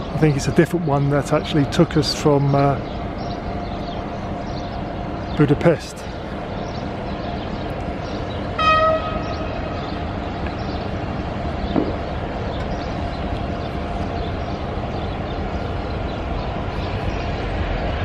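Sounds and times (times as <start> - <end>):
locomotive engine humming: 0.0 - 18.0
train horn toot: 8.6 - 9.9.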